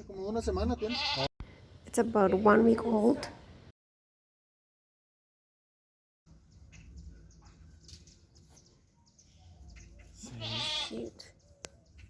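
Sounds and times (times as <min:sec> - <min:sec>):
lamb bleating: 0:00.8 - 0:01.3, 0:10.2 - 0:11.1.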